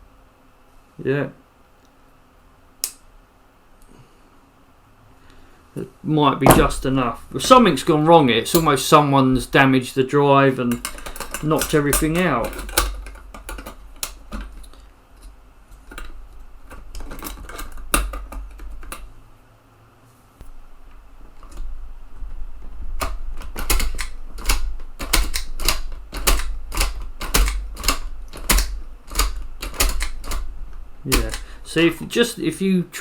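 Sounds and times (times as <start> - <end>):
floppy drive eject clicks: 31.1 - 31.5.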